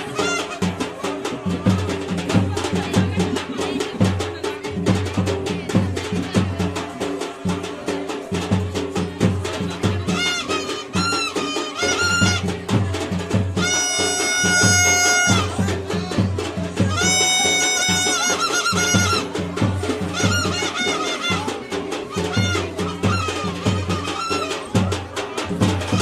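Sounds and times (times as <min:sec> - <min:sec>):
reedy wind instrument melody: 0:00.0 - 0:00.9, 0:10.1 - 0:12.7, 0:13.5 - 0:16.0, 0:16.7 - 0:26.0
steady drumming: 0:00.0 - 0:26.0.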